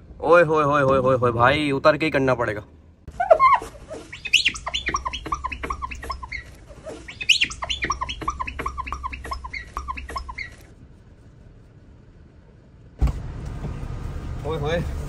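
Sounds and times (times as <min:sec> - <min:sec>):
birds chirping: 0:03.1 - 0:10.7.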